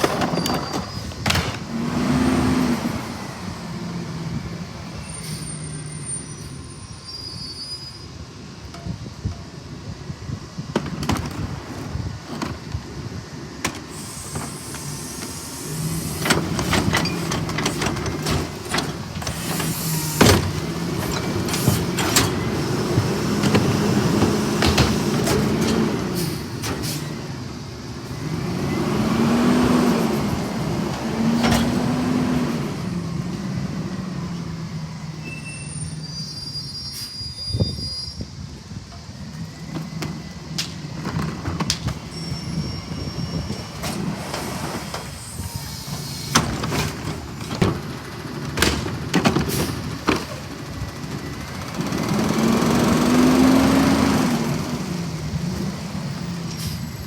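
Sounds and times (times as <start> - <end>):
garbage truck engine revving: 0.0 - 6.1, 10.8 - 35.3, 39.4 - 57.0
hydraulic packer cycling: 10.6 - 27.4.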